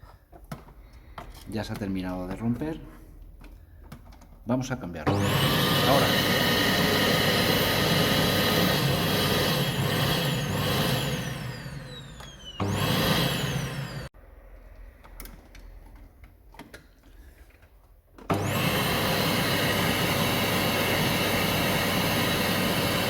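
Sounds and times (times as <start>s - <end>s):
vacuum cleaner motor whining: 5.0s - 14.2s, 18.2s - 23.0s.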